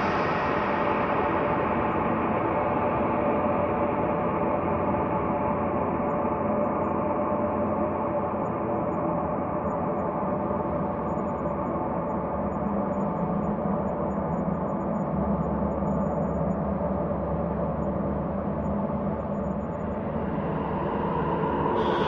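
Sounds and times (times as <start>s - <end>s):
sustained low drone tones: 19.5s - 22.0s.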